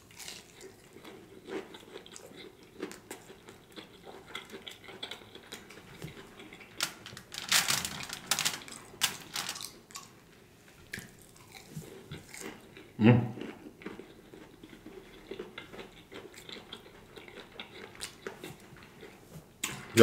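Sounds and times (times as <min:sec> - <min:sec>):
close-up chewing with mouth smacks: 0:00.0 - 0:06.8, 0:10.8 - 0:19.2.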